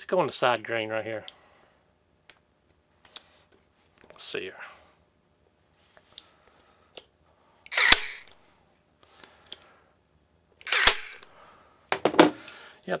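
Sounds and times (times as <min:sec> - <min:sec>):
nail gun snaps: 0:07.7 - 0:08.3, 0:10.6 - 0:11.3.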